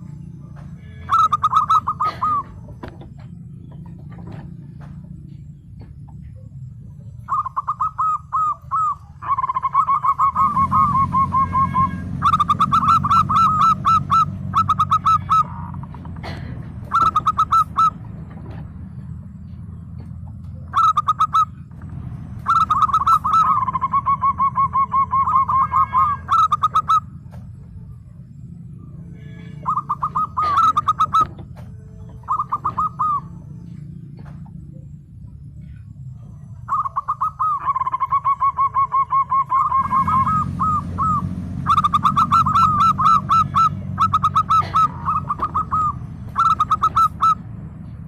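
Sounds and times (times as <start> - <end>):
dove cooing: 0.8 - 27.3, 29.4 - 35.0, 35.6 - 48.0.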